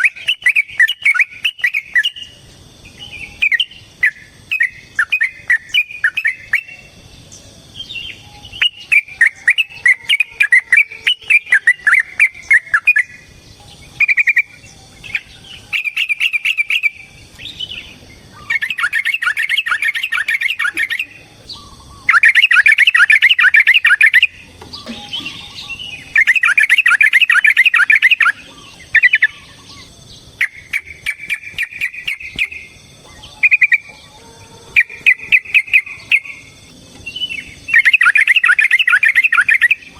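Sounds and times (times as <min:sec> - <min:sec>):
bird singing chattering phrases: 0:00.0 - 0:39.9.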